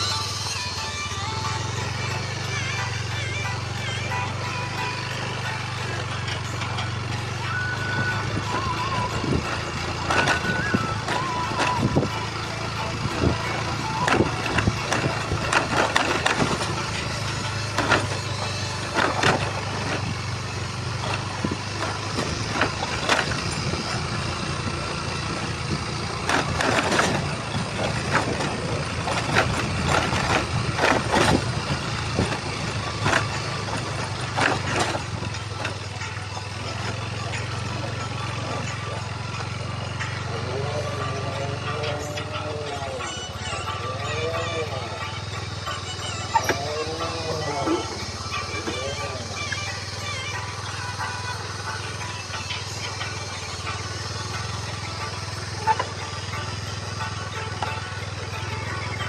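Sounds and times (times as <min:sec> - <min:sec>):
vehicle engine running: 0:00.0 - 0:59.0
vehicle clunks and knocks: 0:14.0 - 0:20.2.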